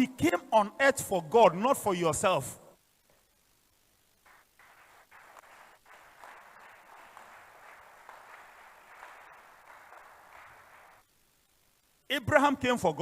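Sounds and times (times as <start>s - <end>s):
scattered clapping: 4.2s - 11.1s.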